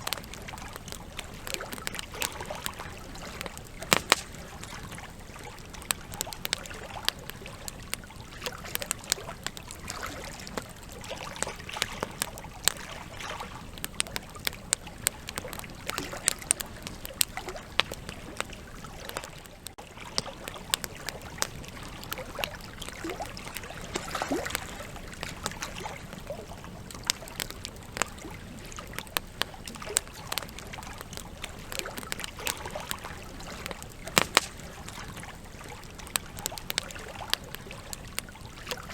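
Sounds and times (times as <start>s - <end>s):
campfire crackling and popping: 0.0s - 38.9s
hiss of flame: 3.6s - 4.6s, 32.1s - 35.2s.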